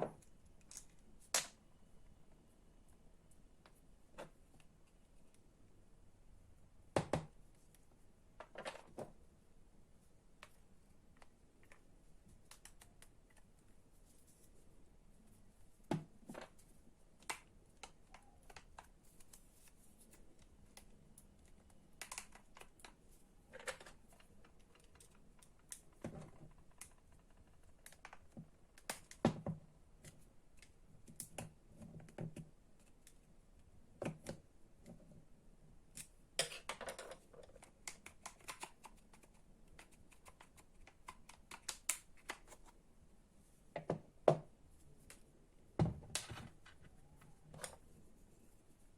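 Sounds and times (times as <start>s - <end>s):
clicks and knocks of small parts: 0.1s - 1.6s, 16.2s - 33.3s, 35.9s - 42.8s.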